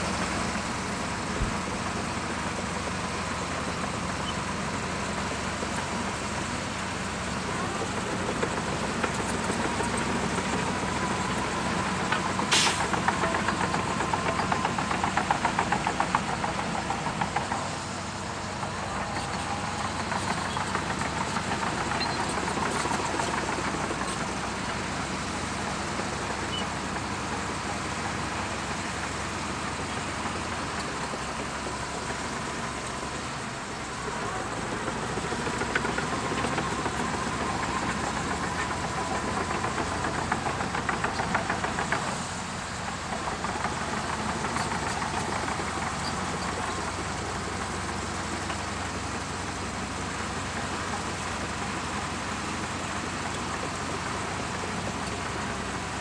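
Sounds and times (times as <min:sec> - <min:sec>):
bulldozer diesel engine working: 0:00.0 - 0:56.0
fast rattle and clatter: 0:00.7 - 0:56.0.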